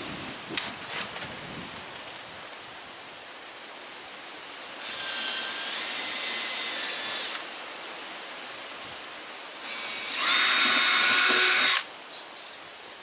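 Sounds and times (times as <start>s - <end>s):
power drill whining: 4.8s - 7.4s, 9.6s - 11.9s.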